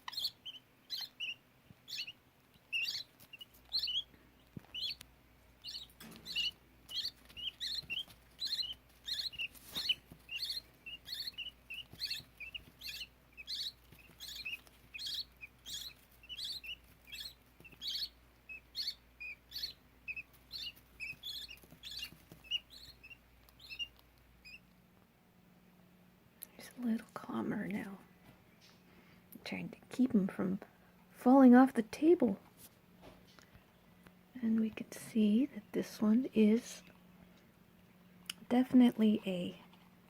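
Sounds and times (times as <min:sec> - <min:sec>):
budgerigar chicks chirping: 0:00.0 - 0:24.7.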